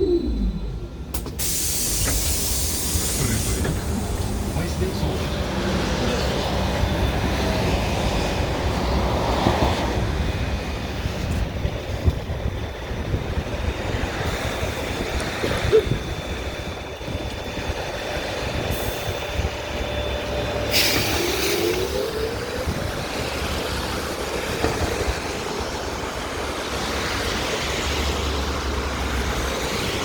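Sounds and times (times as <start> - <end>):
rising electric whine: 0.0 - 2.7
trolleybus low rumble: 0.0 - 30.0
compressed air hiss: 1.2 - 4.5, 20.7 - 22.0.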